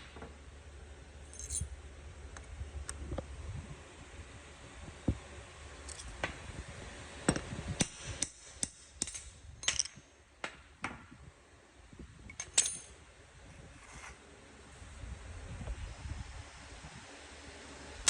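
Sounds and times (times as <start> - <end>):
metal tools knocking and clinking: 1.3 - 1.7, 9.0 - 10.2, 12.3 - 13.0.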